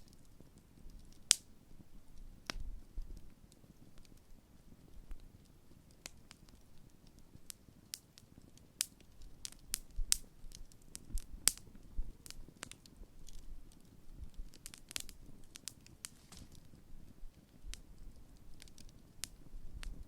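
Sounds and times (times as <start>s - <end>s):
bonfire crackling: 0.0s - 20.0s
soft low rustle: 13.3s - 20.0s.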